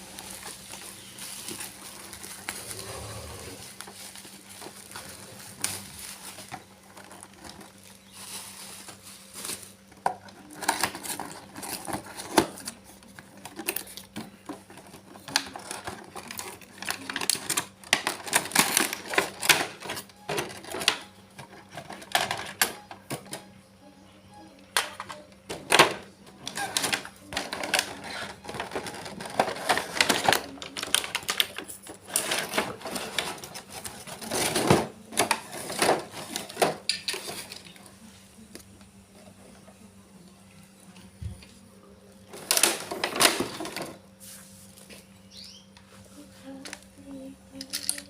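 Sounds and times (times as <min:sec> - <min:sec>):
packaging crinkling: 0:00.0 - 0:12.7, 0:15.2 - 0:19.5.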